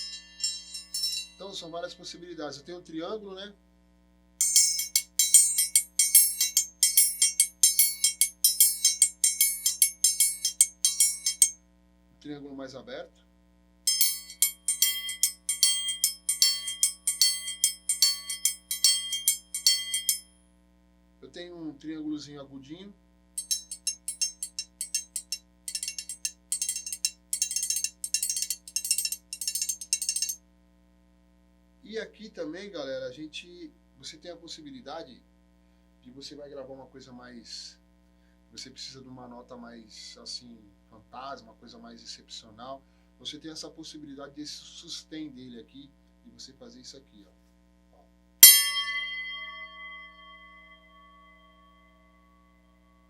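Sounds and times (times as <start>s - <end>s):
metal disc struck rhythmically: 0.0s - 1.4s, 4.4s - 11.6s, 13.9s - 20.2s, 23.4s - 30.4s, 48.4s - 51.3s
high-pitched metal triangle ringing: 0.0s - 1.7s, 4.4s - 11.6s, 13.9s - 20.3s, 23.4s - 30.4s, 48.4s - 53.0s.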